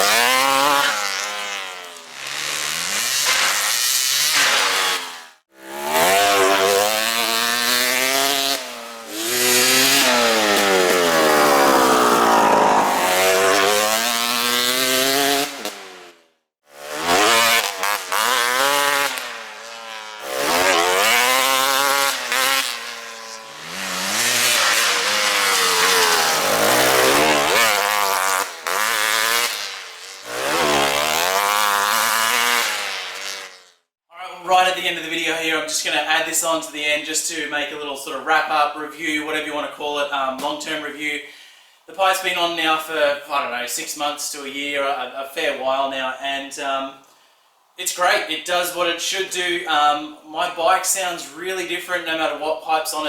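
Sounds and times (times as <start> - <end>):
dirt bike engine revving: 0.0 - 33.8.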